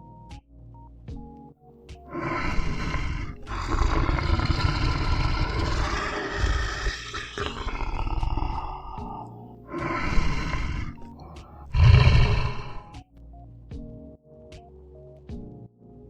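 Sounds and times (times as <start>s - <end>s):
big cat roaring: 2.1s - 13.0s.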